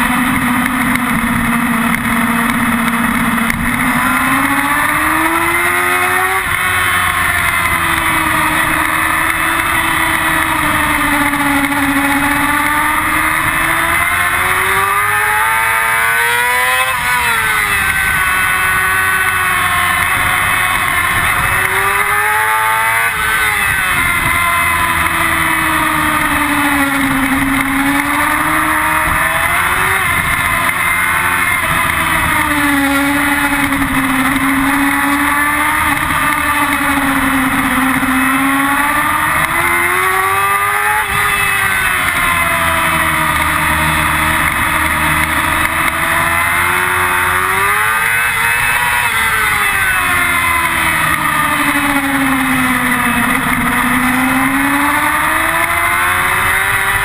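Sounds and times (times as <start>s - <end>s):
motorcycle engine revving: 0.0s - 57.0s
wind noise: 0.0s - 57.0s.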